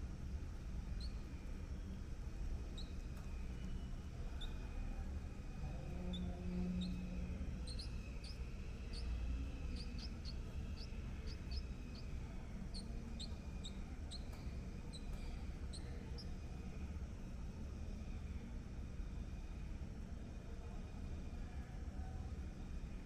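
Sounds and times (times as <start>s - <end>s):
steady low rumble: 0.0s - 22.9s
small birds chirping: 0.5s - 17.0s.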